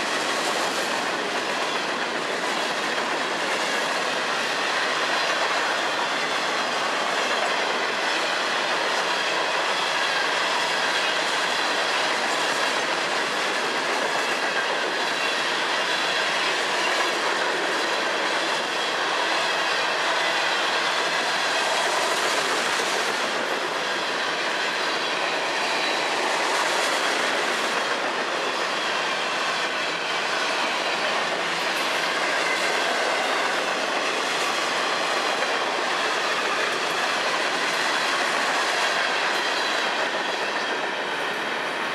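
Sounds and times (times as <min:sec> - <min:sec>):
steel wheels running on rails: 0:00.0 - 0:41.9.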